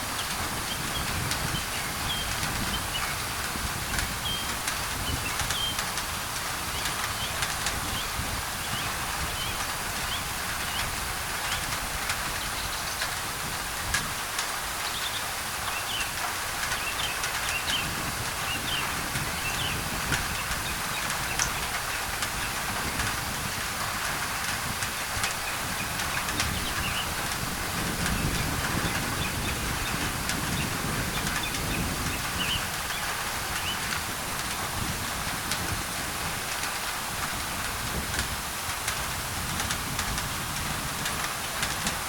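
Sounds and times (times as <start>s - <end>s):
rain on a tin roof: 0.0s - 42.0s
small birds chirping: 0.7s - 3.3s, 3.9s - 5.8s, 14.8s - 22.6s, 25.3s - 27.2s, 28.0s - 34.0s.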